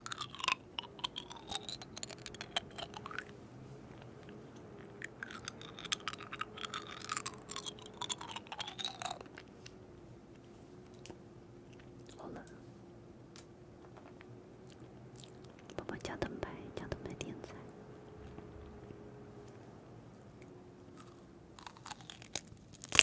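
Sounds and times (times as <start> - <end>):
food crunching and scraping: 0.0 - 12.6, 13.8 - 15.8, 20.3 - 23.0
faint steady hum: 0.0 - 23.0.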